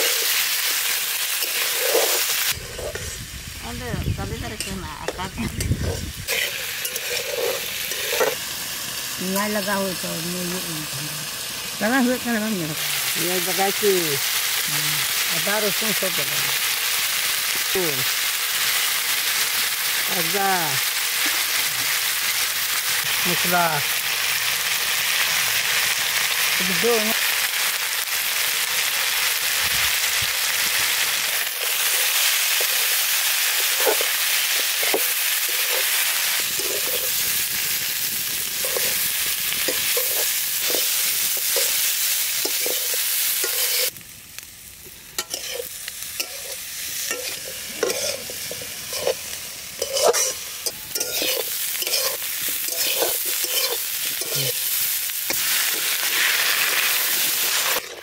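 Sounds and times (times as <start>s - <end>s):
potatoes and onions sizzling in oil: 0.0s - 58.0s
metal spatula scraping a pan: 1.3s - 3.2s, 5.5s - 8.4s, 39.6s - 43.9s, 45.2s - 54.7s, 55.3s - 58.0s.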